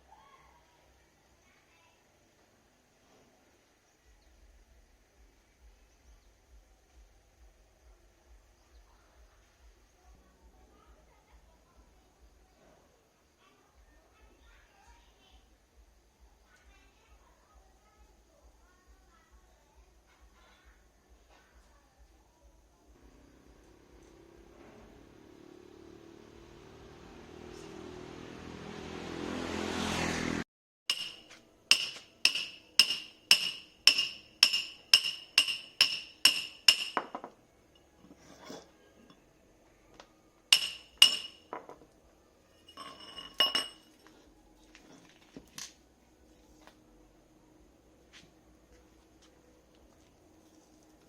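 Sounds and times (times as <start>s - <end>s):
hiss with low hum: 0.0s - 28.3s
metal-on-metal taps: 30.9s - 37.3s, 40.6s - 41.8s.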